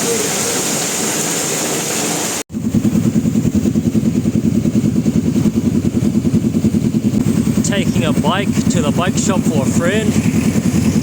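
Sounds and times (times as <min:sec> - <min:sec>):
motorbike engine running: 0:02.5 - 0:11.0.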